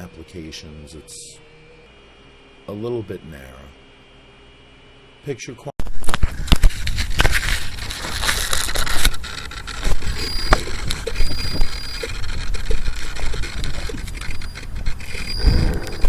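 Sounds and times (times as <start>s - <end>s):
quadcopter motors and propellers: 0.0s - 4.6s, 6.2s - 16.0s
high whines: 0.0s - 16.0s
low rumble and knocking on microphone: 14.7s - 16.0s.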